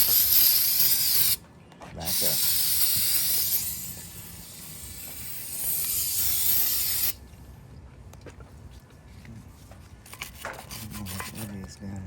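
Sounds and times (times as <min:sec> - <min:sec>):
aerosol can spraying: 0:00.0 - 0:01.4, 0:02.1 - 0:07.2.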